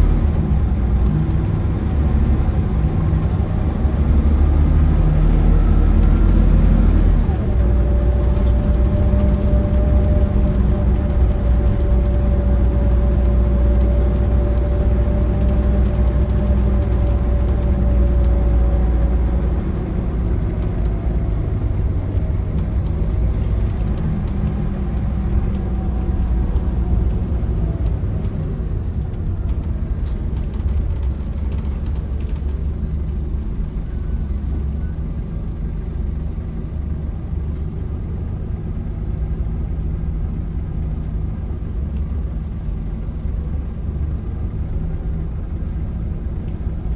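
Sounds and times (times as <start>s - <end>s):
bus diesel engine running: 0.0s - 46.9s
road rumble: 0.0s - 46.9s.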